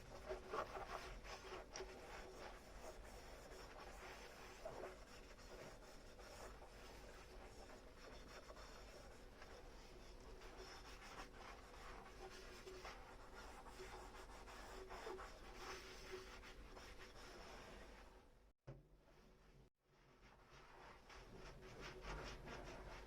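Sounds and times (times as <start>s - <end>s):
sponge scrubbing dishes: 0.0s - 18.1s.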